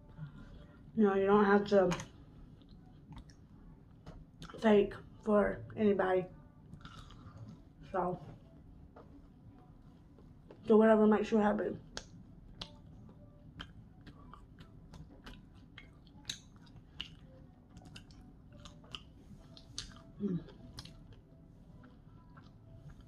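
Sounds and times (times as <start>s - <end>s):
person chewing crunchy food: 2.0s - 3.5s, 6.7s - 7.7s, 11.8s - 23.0s
person humming mm: 20.1s - 20.8s.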